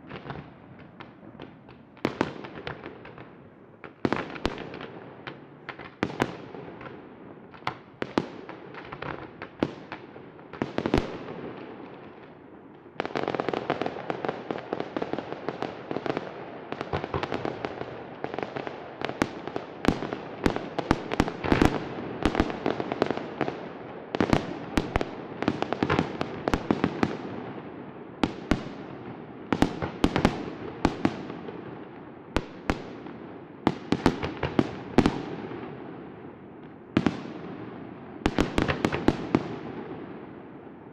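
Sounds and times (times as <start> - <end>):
fireworks bangs: 16.8 - 36.0, 36.9 - 40.4.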